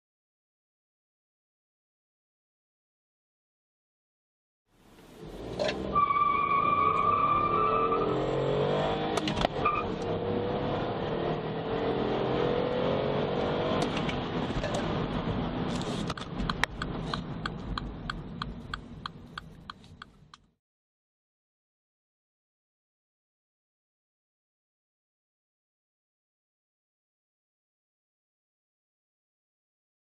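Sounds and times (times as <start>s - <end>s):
car engine at full throttle: 5.1s - 20.0s
regular ticks: 16.2s - 20.5s.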